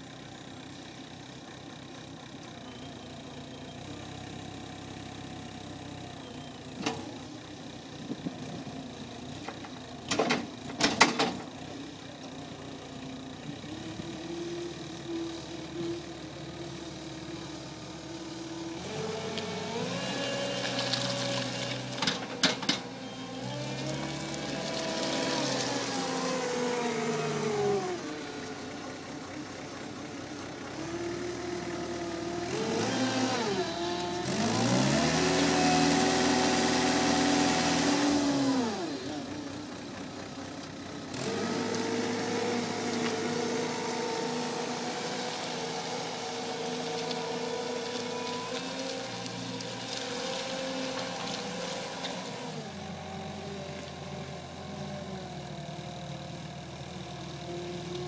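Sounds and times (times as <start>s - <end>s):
loader diesel engine revving: 13.5s - 58.0s.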